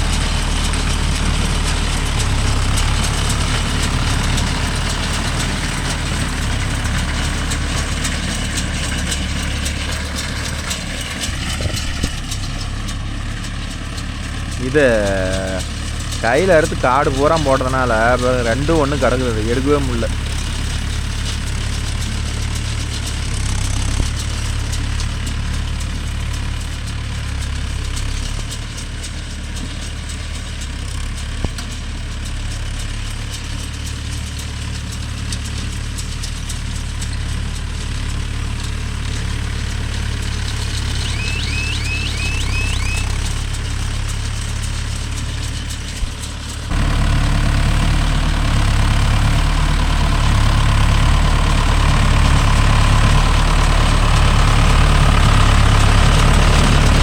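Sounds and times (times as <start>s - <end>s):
tractor engine running: 0.0s - 57.0s
high chirps: 40.5s - 43.1s.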